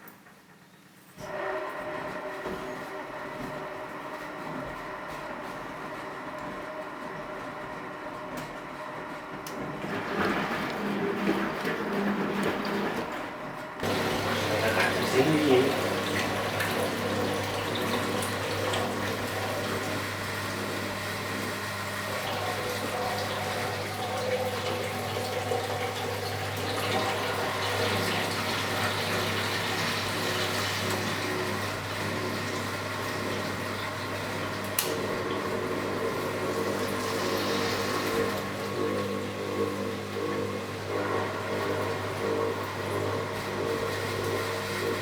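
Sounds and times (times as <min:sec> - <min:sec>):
washing machine running: 0:00.0 - 0:45.0
water rushing: 0:13.8 - 0:19.4.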